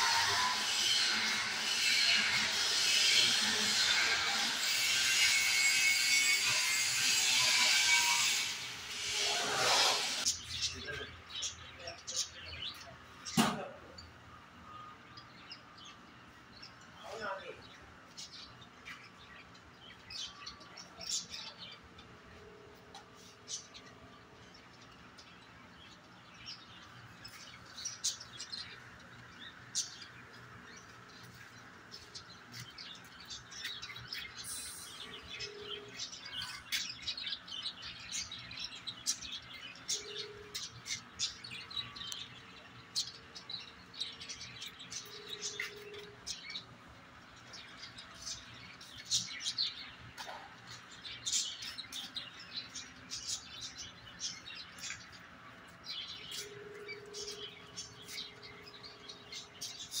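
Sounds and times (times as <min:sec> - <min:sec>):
small birds chirping: 0:00.0 - 1:00.0.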